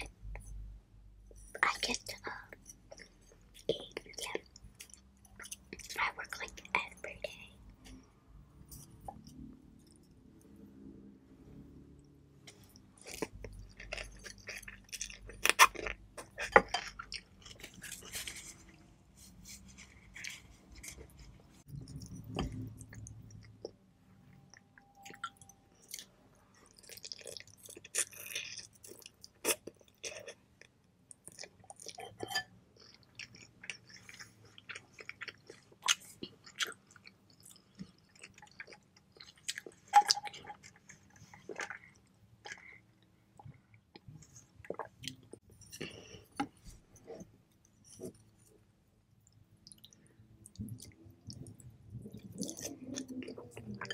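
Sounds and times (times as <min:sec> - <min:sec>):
wet chewing with mouth clicks: 0:49.2 - 0:53.9.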